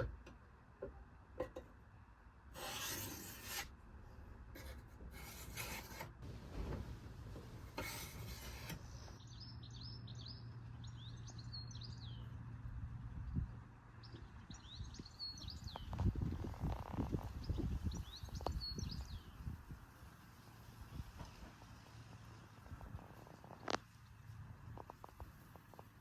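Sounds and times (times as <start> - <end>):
hand file scraping: 2.6 - 3.7, 4.6 - 6.2, 7.7 - 9.0
small birds chirping: 8.8 - 12.4, 13.3 - 19.6.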